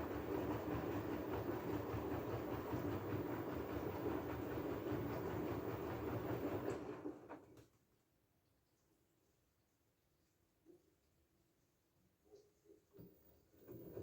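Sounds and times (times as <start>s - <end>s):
washing machine churning rattle: 0.0s - 7.5s
washing machine rumbling: 0.0s - 7.5s.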